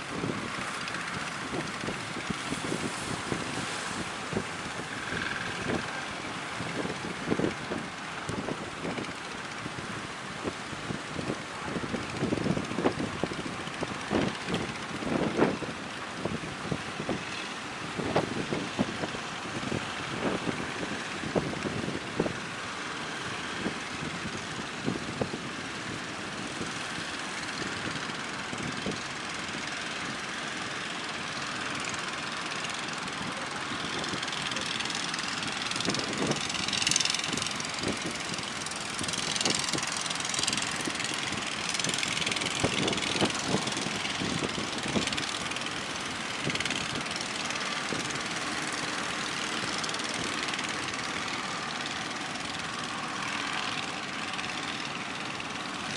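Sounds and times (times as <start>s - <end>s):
wind and surf rushing: 0.0s - 29.0s
wind buffeting microphone: 0.0s - 30.6s, 31.4s - 55.9s
boat engines running: 0.0s - 55.9s.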